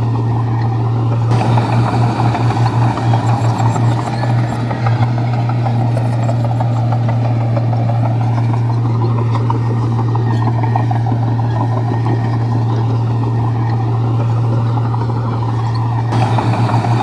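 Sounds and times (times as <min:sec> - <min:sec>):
bulldozer diesel engine drone: 0:00.0 - 0:17.0
dense rattling: 0:01.3 - 0:06.8, 0:16.1 - 0:17.0.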